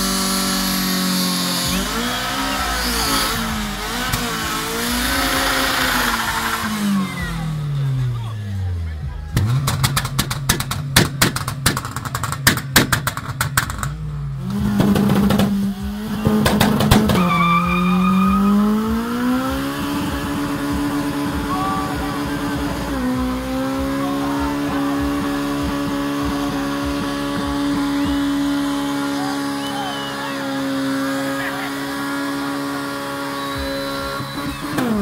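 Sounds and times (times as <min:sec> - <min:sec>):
car engine revving high: 0:00.0 - 0:35.0
exhaust pops and bangs: 0:09.3 - 0:17.3, 0:24.5 - 0:29.1.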